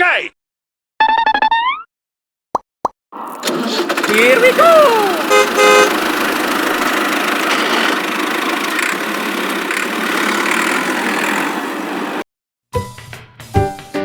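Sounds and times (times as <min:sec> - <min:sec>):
motor running: 0:03.2 - 0:12.2.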